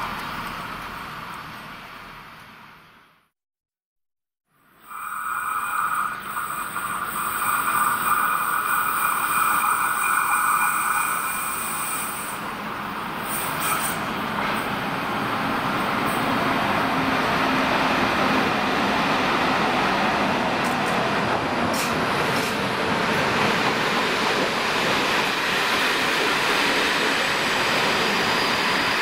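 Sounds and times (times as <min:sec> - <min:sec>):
high steady squeal: 0:04.8 - 0:12.6, 0:26.6 - 0:29.0
train wheels rumbling on rail: 0:05.5 - 0:29.0.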